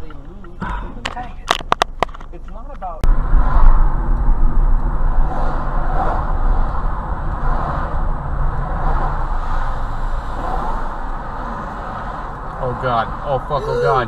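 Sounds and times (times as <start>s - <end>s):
car engine and road rumble: 0.0s - 14.0s
road hiss: 5.1s - 14.0s.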